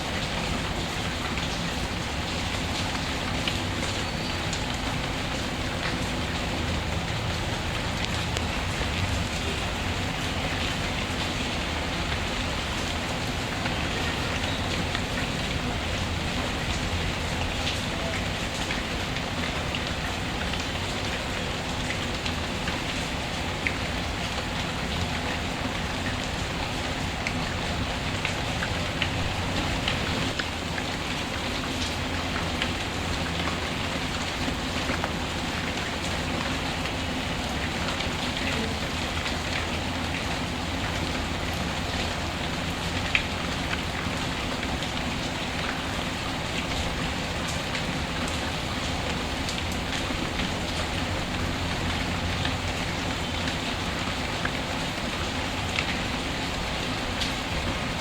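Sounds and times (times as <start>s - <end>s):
rain falling: 0.0s - 58.0s.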